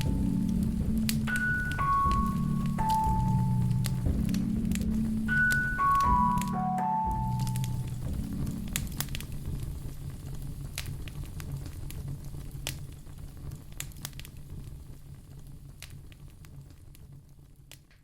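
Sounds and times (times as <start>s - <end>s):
low steady rumble: 0.0s - 17.7s
wood fire crackling: 0.0s - 18.0s
fire pops and snaps: 7.4s - 18.0s.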